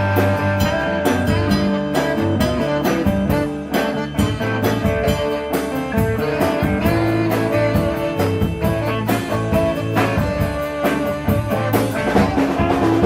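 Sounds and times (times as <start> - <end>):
blues band playing live: 0.0 - 13.0
steady drum beat: 0.0 - 13.0.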